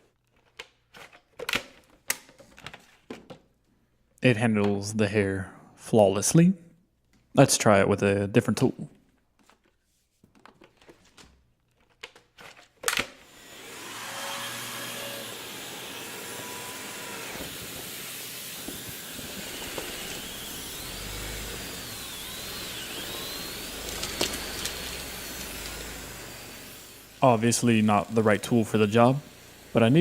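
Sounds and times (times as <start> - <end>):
vacuum cleaner motor running: 13.2 - 30.0.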